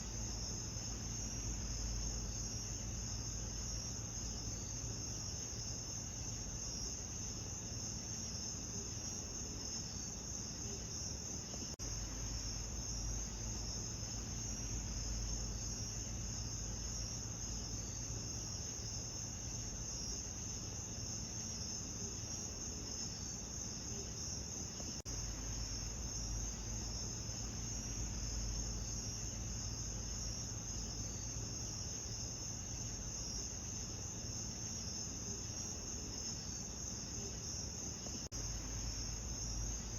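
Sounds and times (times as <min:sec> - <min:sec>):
low steady rumble: 0:00.0 - 0:08.1, 0:11.2 - 0:21.0, 0:25.1 - 0:34.3, 0:38.0 - 0:39.9
crickets chirring: 0:00.0 - 0:39.9.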